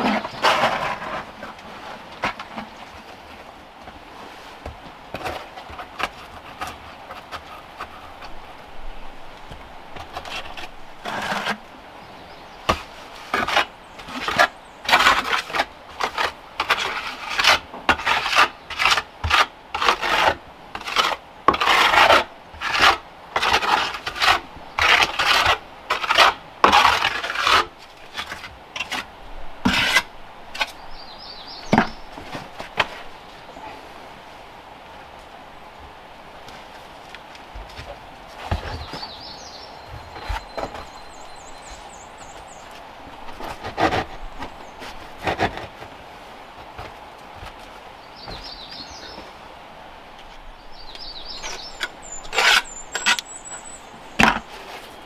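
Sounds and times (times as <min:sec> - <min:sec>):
hand saw rubbing strokes: 0:51.4 - 0:53.7.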